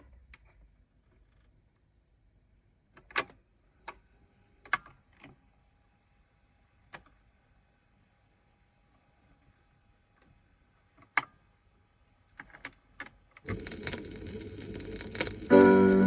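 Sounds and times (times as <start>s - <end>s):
faint steady hiss: 0.0s - 16.0s
vinyl record clicks and pops: 12.3s - 16.0s.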